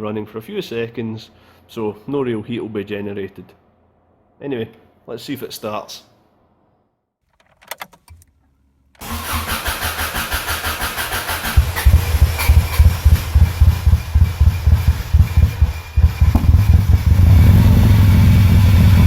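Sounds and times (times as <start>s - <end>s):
ignition key clicks: 7.4s - 8.3s
starter motor cranking: 9.0s - 17.3s
engine running with uneven pulsing: 9.0s - 19.0s.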